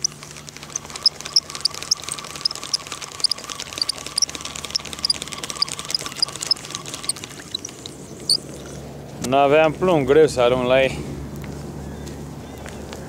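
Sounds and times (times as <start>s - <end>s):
faint rapid ticking: 0.0s - 8.4s
small birds chirping: 0.0s - 8.9s.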